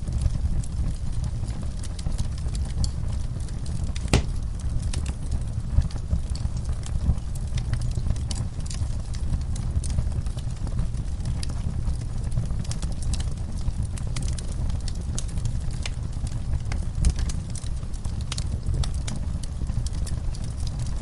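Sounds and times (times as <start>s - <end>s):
wood fire crackling: 0.0s - 21.0s
sharp pops of fire: 3.7s - 5.1s.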